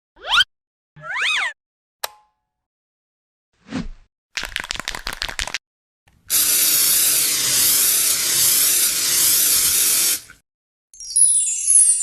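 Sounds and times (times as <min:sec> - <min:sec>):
loud steady hiss: 0:06.3 - 0:10.3.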